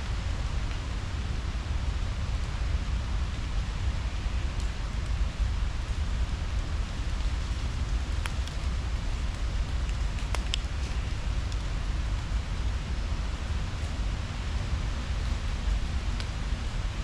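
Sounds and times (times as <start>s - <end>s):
unsteady low rumble: 0.0s - 17.0s
faint light clicks: 9.8s - 11.7s.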